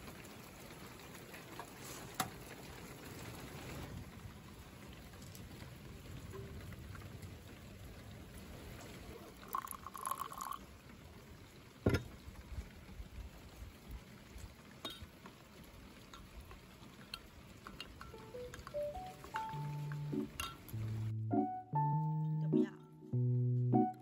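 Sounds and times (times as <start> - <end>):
liquid pouring: 8.7 - 11.0, 14.9 - 21.0.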